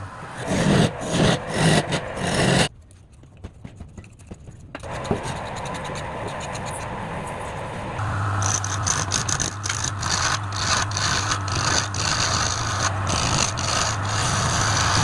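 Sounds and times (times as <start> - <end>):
turning tool scraping wood: 0.4 - 6.9, 8.4 - 15.0
wood lathe motor hum: 8.0 - 15.0.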